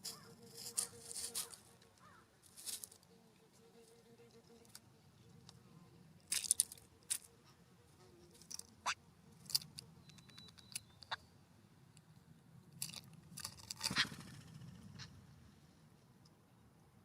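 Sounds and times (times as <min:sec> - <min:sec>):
birds pecking at seed: 0:00.0 - 0:03.2, 0:03.8 - 0:11.2, 0:12.8 - 0:14.5.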